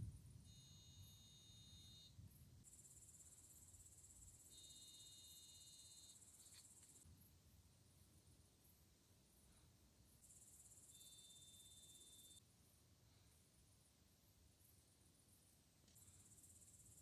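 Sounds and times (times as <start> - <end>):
high continuous insect buzz: 0.1 - 12.5, 14.5 - 17.0
cricket trills: 0.5 - 7.4, 10.1 - 12.4, 15.4 - 17.0.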